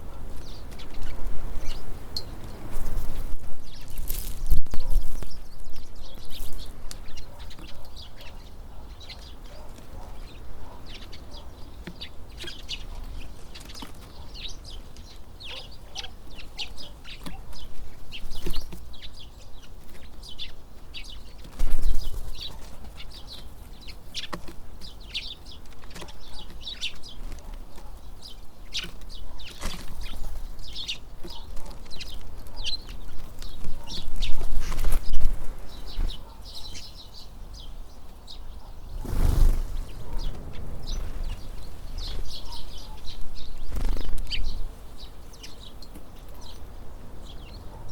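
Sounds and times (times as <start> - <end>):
wind rumble on microphone: 0.0 - 7.2, 38.4 - 45.1
birds chirping: 0.0 - 47.9.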